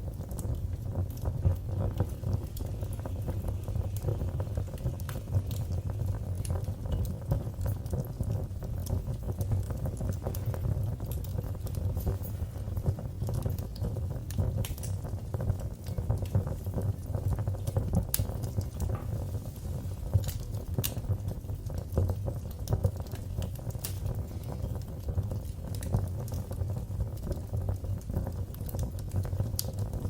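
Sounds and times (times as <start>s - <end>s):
fire crackling and popping: 0.0s - 30.0s
low rumble of flames: 0.0s - 30.0s.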